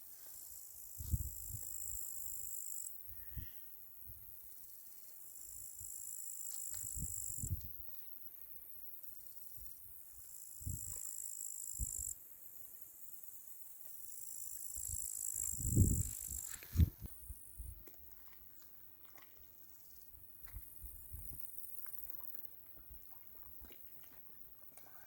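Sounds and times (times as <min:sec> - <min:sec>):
crickets trilling: 0:00.2 - 0:17.8.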